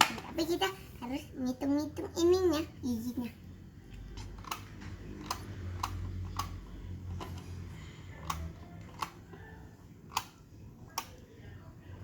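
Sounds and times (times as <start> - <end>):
plastic toy clicking: 4.2 - 7.6, 8.2 - 9.4, 10.0 - 11.2.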